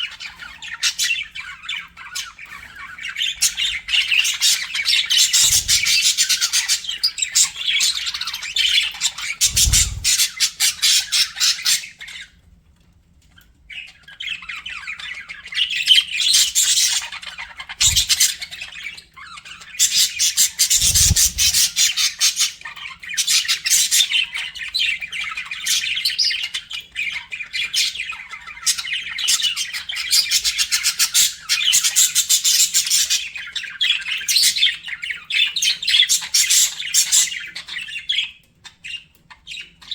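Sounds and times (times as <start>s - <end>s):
budgerigars chattering: 0.0s - 12.2s, 19.6s - 22.6s.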